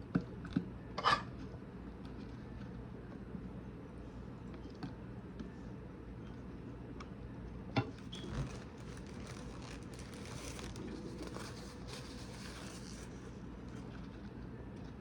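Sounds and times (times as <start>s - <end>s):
low room hum: 0.0s - 15.0s
food and utensils clicking and rustling: 7.8s - 14.2s.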